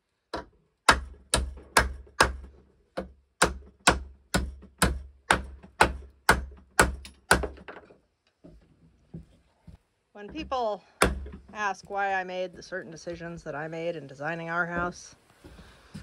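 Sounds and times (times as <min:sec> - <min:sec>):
hammer driving nails: 0:00.3 - 0:08.0.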